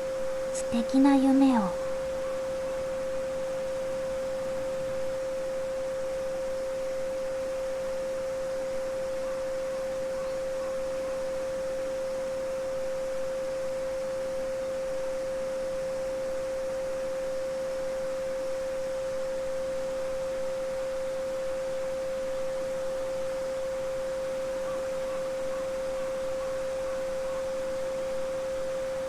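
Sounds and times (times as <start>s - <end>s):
pure sine tone: 0.0s - 29.0s
babbling brook: 0.6s - 1.8s.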